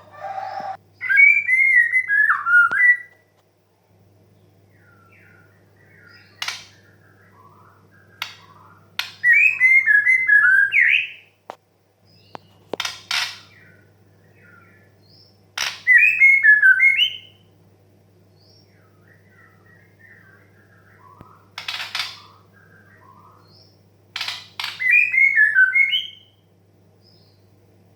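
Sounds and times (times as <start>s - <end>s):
harsh rasping bird calls: 0.0s - 3.0s, 4.8s - 11.3s, 12.2s - 17.5s, 18.7s - 26.4s
low steady hum: 0.0s - 27.9s
faint bird chirps: 4.3s - 11.3s, 12.0s - 17.5s, 18.3s - 27.5s.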